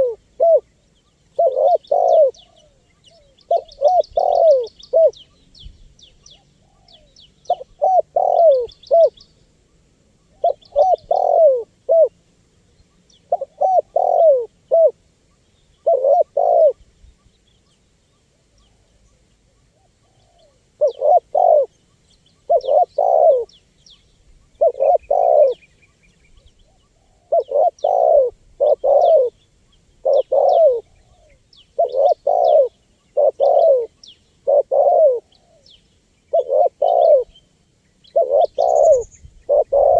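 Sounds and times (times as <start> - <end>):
dove cooing: 0.0 - 5.4, 6.3 - 9.2, 10.2 - 12.2, 13.2 - 15.0, 15.8 - 16.8, 19.6 - 21.8, 22.4 - 23.6, 24.4 - 25.7, 26.6 - 29.4, 30.0 - 35.7, 36.3 - 37.4, 38.0 - 39.9
faint high chirping: 0.0 - 39.9.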